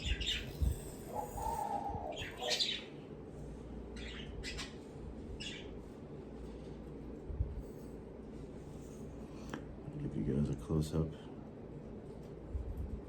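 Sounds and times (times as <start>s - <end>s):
bird whistle: 0.0s - 2.9s
pet bird chirping: 0.0s - 2.9s, 3.9s - 4.8s, 5.4s - 5.8s
low fan hum: 0.0s - 13.0s.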